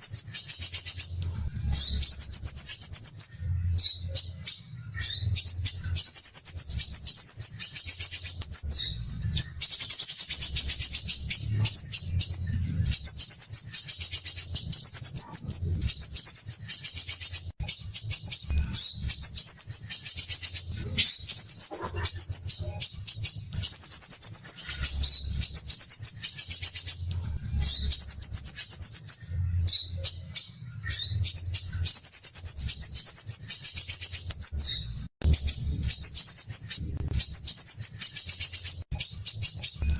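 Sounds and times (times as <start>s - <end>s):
bird trilling song: 0.0s - 39.9s.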